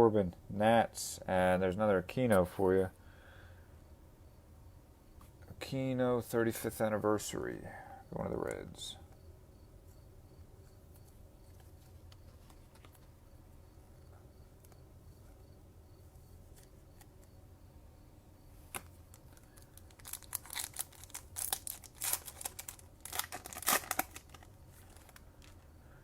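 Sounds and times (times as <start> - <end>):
foil wrapper crackling: 18.7 - 25.7.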